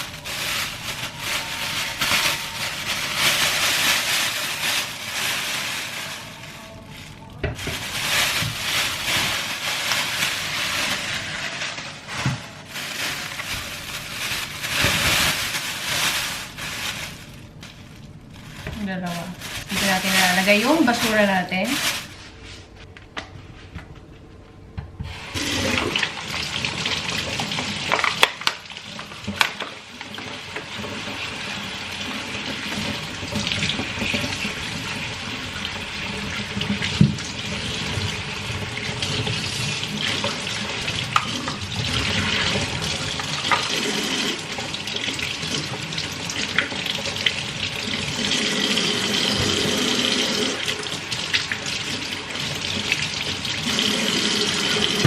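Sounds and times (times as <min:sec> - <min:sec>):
kitchen tap running into sink: 0:25.0 - 0:55.0.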